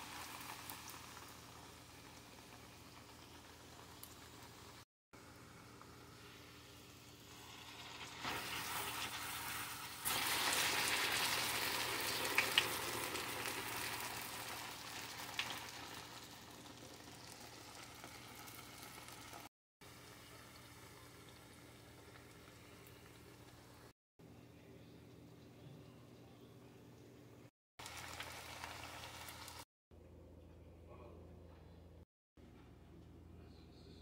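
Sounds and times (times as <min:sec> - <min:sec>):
plantain sizzling in hot oil: 0:00.0 - 0:04.8, 0:05.7 - 0:23.9, 0:27.8 - 0:29.6.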